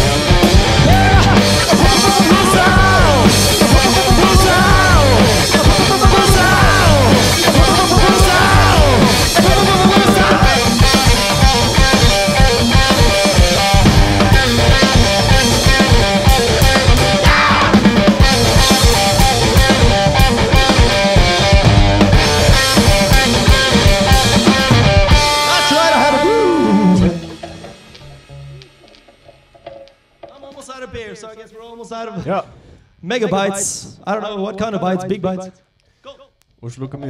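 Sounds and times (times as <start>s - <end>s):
distorted guitar: 0.0s - 31.2s
loud driving drums: 0.0s - 31.5s.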